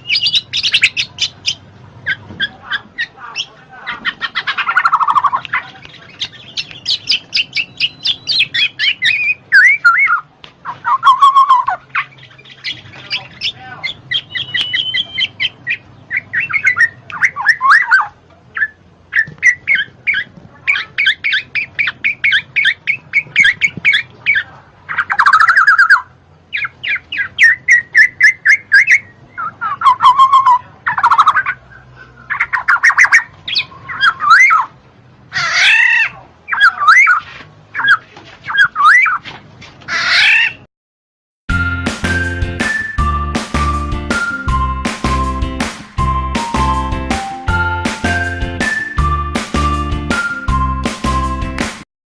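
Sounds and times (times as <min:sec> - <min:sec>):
bird chattering and squawking: 0:00.0 - 0:40.6
bird slurred whistles: 0:14.1 - 0:19.9, 0:41.6 - 0:45.6, 0:48.0 - 0:51.4.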